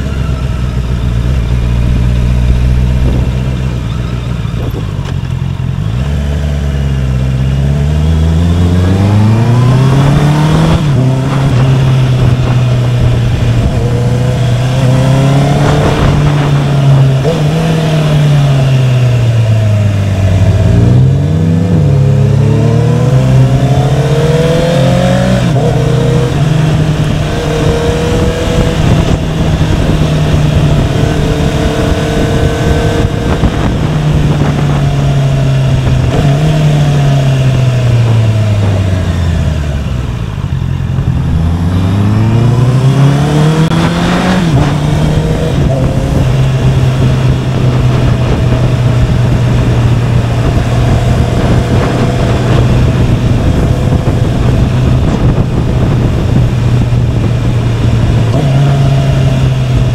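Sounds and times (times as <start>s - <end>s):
wind noise: 0.0s - 6.0s, 8.0s - 59.9s
motorcycle engine: 0.0s - 59.9s.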